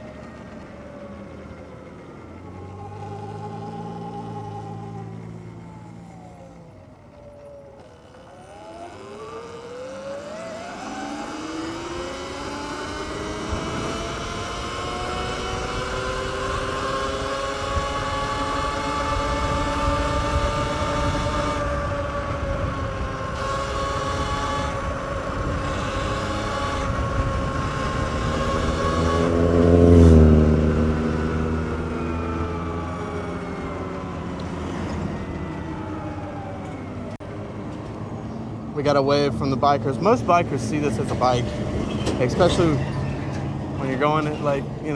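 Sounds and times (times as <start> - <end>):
wind and road rush: 0.0 - 44.9
electric motor whining: 1.8 - 37.2.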